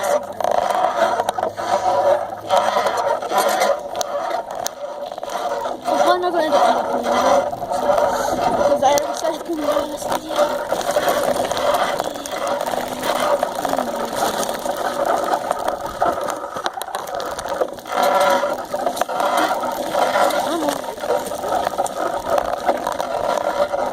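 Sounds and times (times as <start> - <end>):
bicycle rattling and whirring: 0.0 - 23.9.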